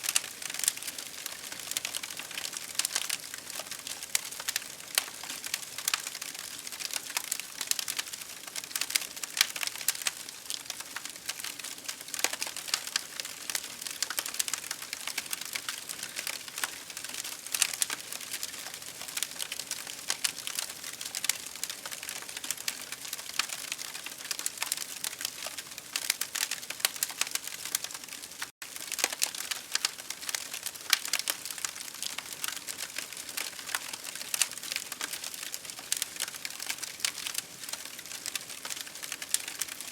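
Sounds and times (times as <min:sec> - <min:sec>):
continuous hiss: 0:00.0 - 0:23.8
campfire crackling: 0:00.0 - 0:39.9
fire snaps and pops: 0:00.1 - 0:39.9.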